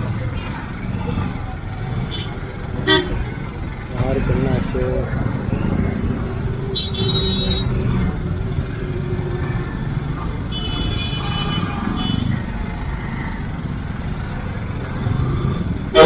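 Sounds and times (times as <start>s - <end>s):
traffic engine and road noise: 0.0s - 16.0s
high-pitched car horn honks: 2.1s - 3.3s, 6.7s - 7.9s, 10.5s - 12.3s.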